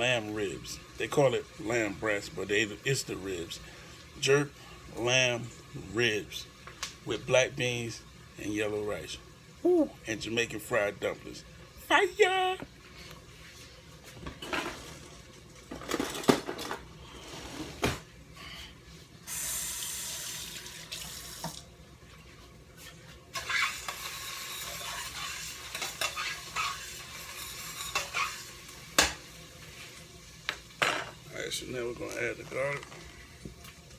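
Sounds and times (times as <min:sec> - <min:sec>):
running tap water hiss: 0:00.0 - 0:14.0, 0:16.8 - 0:22.3, 0:23.3 - 0:33.9
dishes and utensils clinking: 0:23.4 - 0:29.2, 0:30.8 - 0:31.2.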